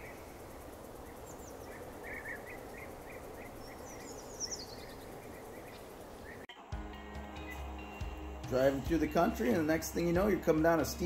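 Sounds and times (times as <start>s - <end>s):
background hiss: 0.0s - 11.0s
short repeated bird chirps: 1.1s - 6.4s.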